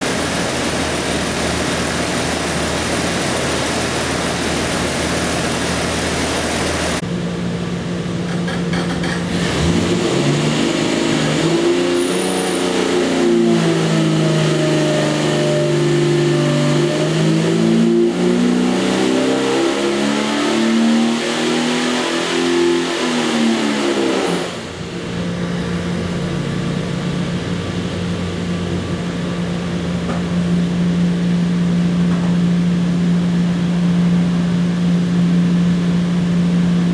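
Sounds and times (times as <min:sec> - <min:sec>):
engine revving under load: 0:09.0 - 0:27.4.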